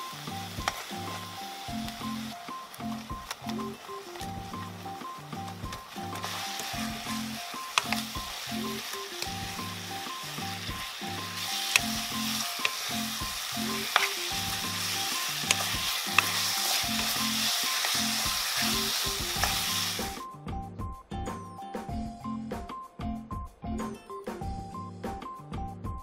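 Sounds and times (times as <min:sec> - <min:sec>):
shrimp sizzling in a frying pan: 0:00.0 - 0:20.2
spatula knocking the pan: 0:11.7 - 0:14.6.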